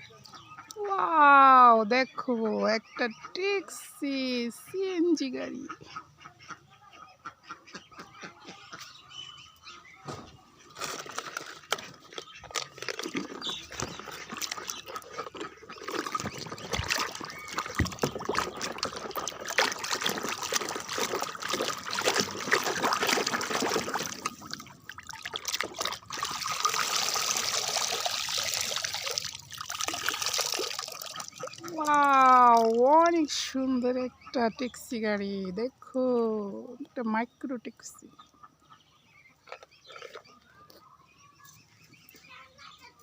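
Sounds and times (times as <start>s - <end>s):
water splashing and trickling: 10.7s - 36.8s.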